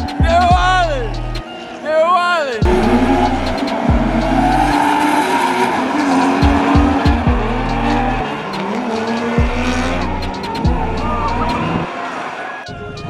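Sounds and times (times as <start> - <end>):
rap track bass line: 0.0 - 1.4, 2.4 - 11.8
tyres squealing: 0.0 - 13.0
car engines revving hard: 2.6 - 12.6.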